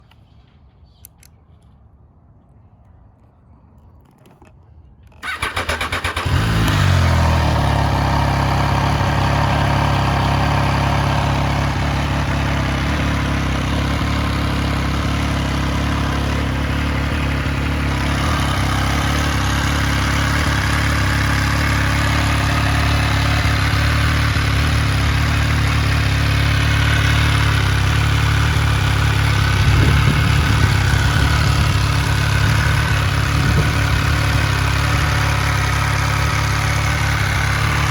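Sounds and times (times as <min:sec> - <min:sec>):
motorcycle starter cranking: 0:05.1 - 0:07.2
motorcycle engine revving and idling: 0:05.1 - 0:37.9.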